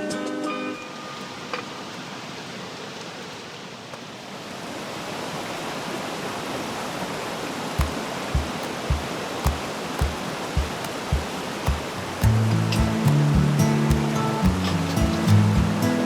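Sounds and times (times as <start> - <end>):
river water rushing: 2.2 - 16.0.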